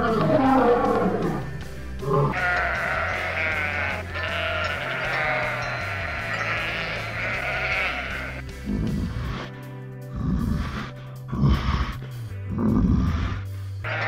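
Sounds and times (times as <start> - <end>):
sheep bleating: 2.0 - 8.8.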